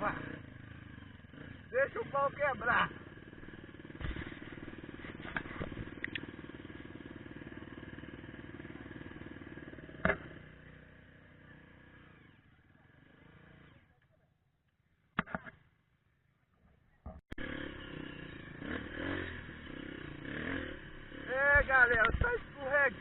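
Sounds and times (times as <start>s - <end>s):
motorcycle engine running: 0.0s - 14.0s, 17.3s - 23.0s
sharp clicks: 5.3s - 6.3s.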